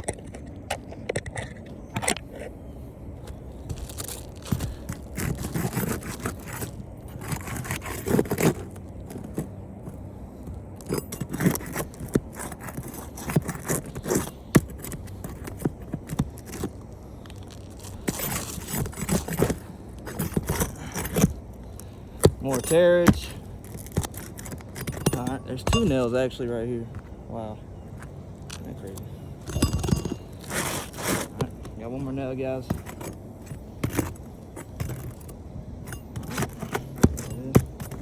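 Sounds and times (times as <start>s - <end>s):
metal tool scraping under shingles: 3.6s - 9.6s, 10.8s - 16.7s, 17.4s - 26.4s, 29.4s - 38.0s
shingles tearing: 3.7s - 9.5s, 10.8s - 21.4s, 30.1s - 31.6s.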